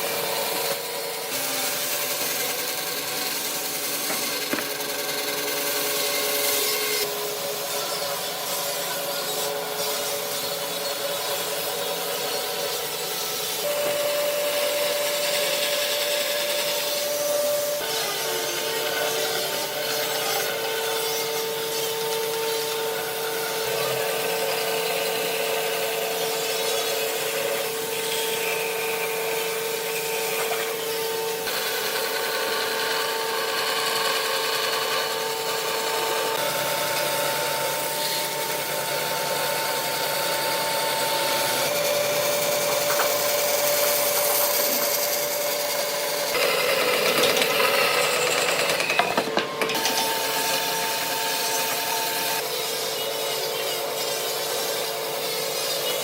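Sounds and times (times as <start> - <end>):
power tool motor hum: 0.0 - 56.0
rough rubbing on wood: 2.1 - 7.0, 41.2 - 46.5.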